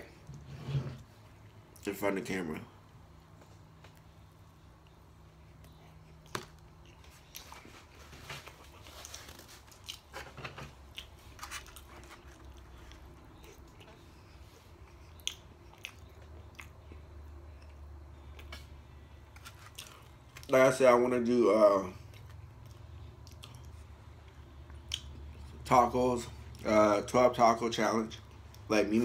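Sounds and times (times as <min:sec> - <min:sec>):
chewing crunchy fried chicken: 0:04.8 - 0:10.2, 0:10.8 - 0:20.5, 0:21.9 - 0:25.7.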